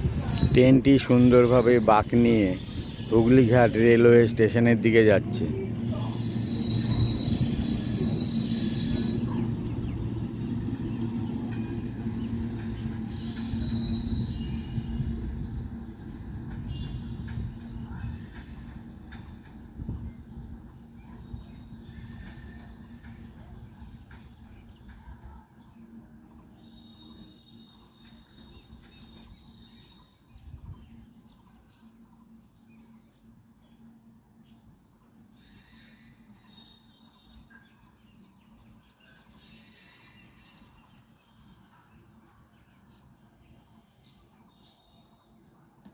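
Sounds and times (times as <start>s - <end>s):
electric train humming past: 0.0s - 45.9s
high-pitched wheel squeal: 0.2s - 4.3s, 5.8s - 9.6s, 12.8s - 15.4s
faint birds chirping: 0.6s - 45.9s.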